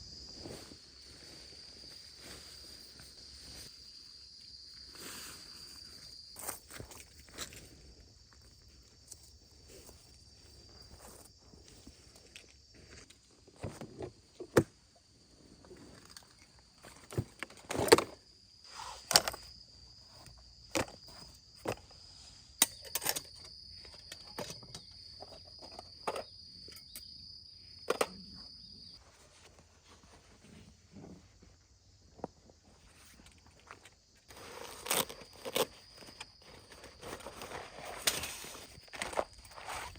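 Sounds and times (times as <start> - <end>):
insect trill: 0.0 - 29.1, 31.3 - 39.9.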